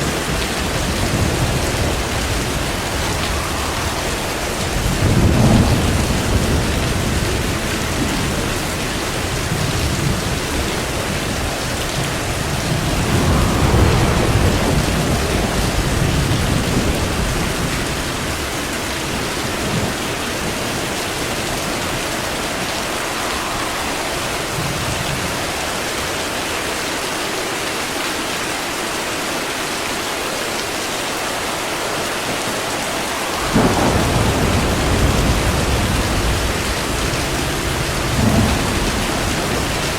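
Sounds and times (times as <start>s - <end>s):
rolling thunder: 0.0s - 26.8s, 31.2s - 39.9s
rain hissing: 0.0s - 39.9s.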